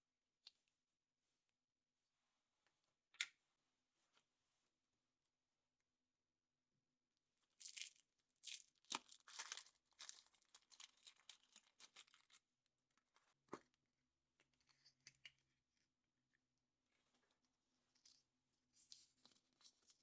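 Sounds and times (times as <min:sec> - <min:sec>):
wrapper tearing and crinkling: 0:08.5 - 0:12.3.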